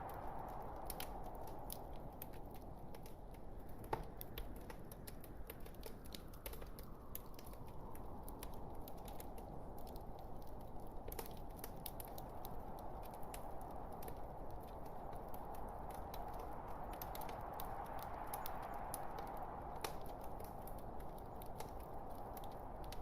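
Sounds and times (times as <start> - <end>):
logs crackling and popping: 0.0 - 23.0.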